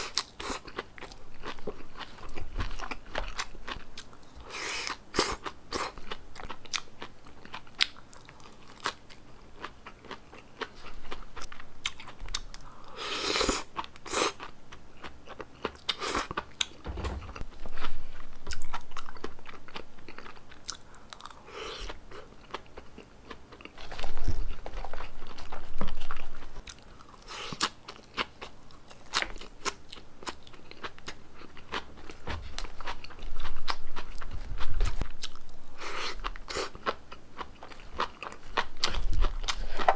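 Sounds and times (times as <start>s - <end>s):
crunchy chewing: 17.8s - 39.9s.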